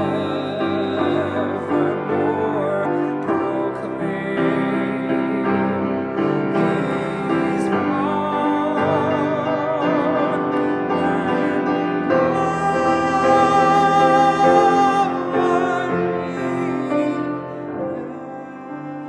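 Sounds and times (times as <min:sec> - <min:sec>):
classical voice singing with vibrato: 0:00.0 - 0:19.0
piano accompaniment: 0:00.0 - 0:19.0.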